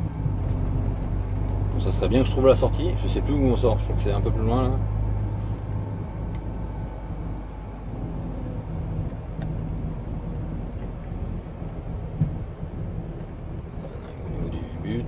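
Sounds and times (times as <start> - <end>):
diesel truck engine humming: 0.0 - 15.0.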